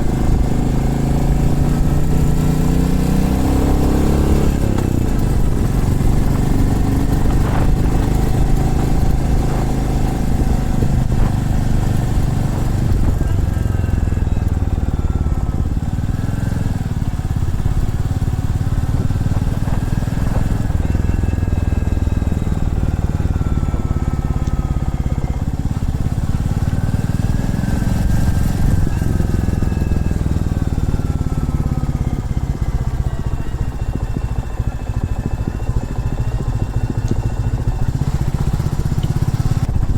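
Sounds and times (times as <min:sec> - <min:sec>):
motorcycle engine running: 0:00.0 - 0:39.9
steady low rumble: 0:04.6 - 0:16.1.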